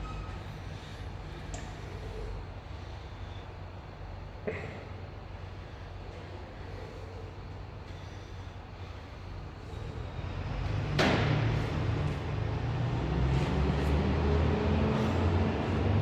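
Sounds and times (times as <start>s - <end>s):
train rumbling: 8.0s - 16.0s
sharp clack of train: 10.7s - 12.4s.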